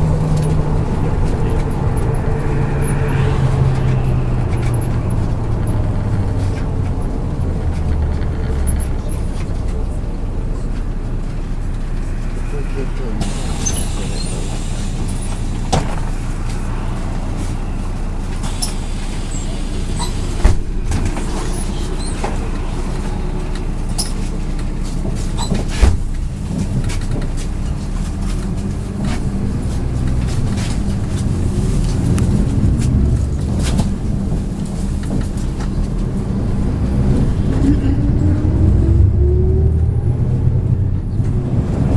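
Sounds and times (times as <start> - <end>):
bus engine hum: 0.0 - 41.9
road rumble: 0.0 - 41.9.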